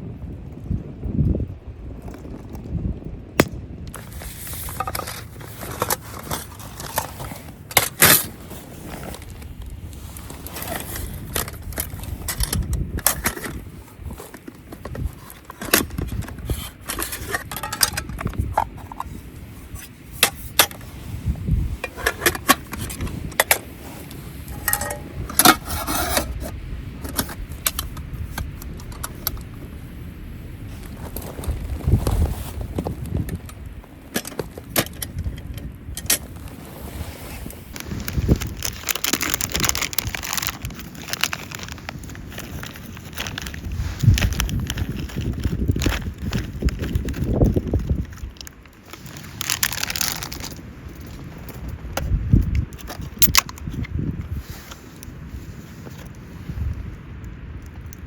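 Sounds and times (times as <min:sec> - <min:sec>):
metal cookware clinking: 0:24.5 - 0:25.2.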